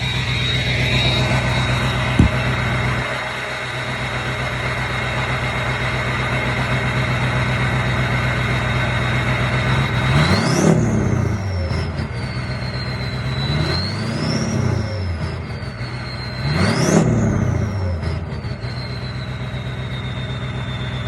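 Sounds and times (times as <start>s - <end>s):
turbo whistle: 0.0s - 4.6s, 10.1s - 21.0s
diesel engine idling: 0.0s - 10.2s
engine revving: 0.0s - 18.6s
brief knock: 2.2s - 2.4s.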